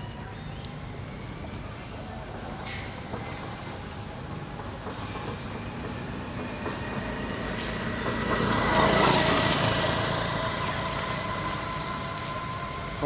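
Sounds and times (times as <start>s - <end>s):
small vehicle passing: 3.6s - 13.0s.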